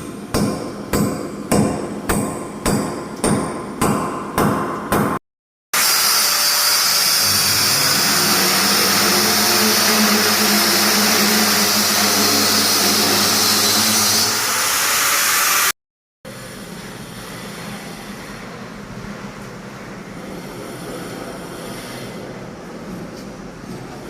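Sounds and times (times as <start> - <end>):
loud machine noise: 5.8 - 18.5.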